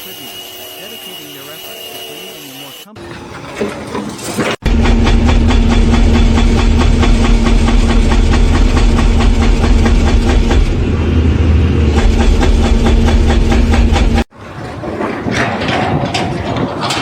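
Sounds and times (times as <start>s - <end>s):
heavy engine humming and clattering: 3.0s - 17.0s.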